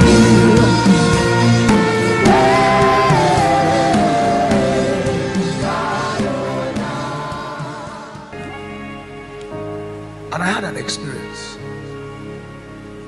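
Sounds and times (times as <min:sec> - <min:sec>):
congregation and choir singing gospel: 0:00.0 - 0:09.0
musical accompaniment: 0:00.0 - 0:13.0.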